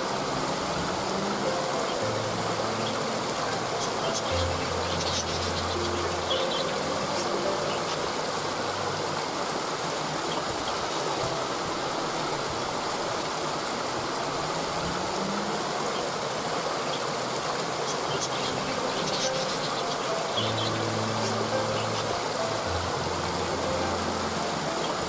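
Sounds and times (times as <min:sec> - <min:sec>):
waterfall rushing: 0:00.0 - 0:25.0
high bird chirps: 0:03.7 - 0:08.1.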